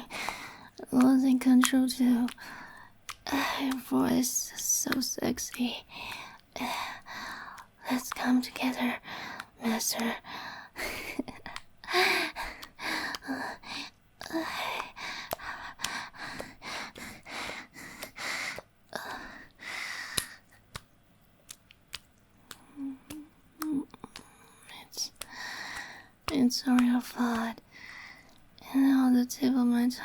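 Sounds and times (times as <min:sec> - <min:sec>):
woman breathing heavily: 0:00.0 - 0:01.0, 0:02.2 - 0:04.7, 0:05.6 - 0:20.8, 0:22.4 - 0:28.4.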